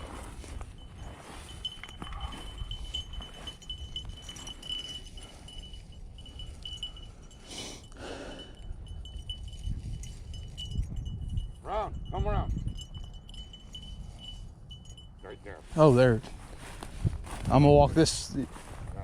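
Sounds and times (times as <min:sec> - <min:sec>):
rustle of brush: 0:00.0 - 0:02.5, 0:15.6 - 0:18.9
small bell ringing: 0:00.0 - 0:16.3
low wind: 0:00.0 - 0:19.0.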